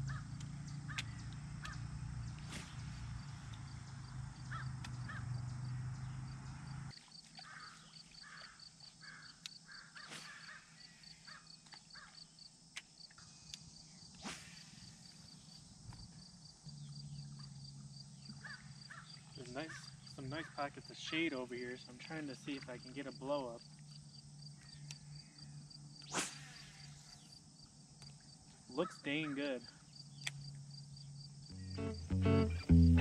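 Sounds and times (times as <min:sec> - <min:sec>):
short repeated bird calls: 0:07.4 - 0:12.2
low steady hum: 0:16.3 - 0:26.0, 0:30.4 - 0:33.0
high-pitched ticking chirp: 0:30.0 - 0:33.0.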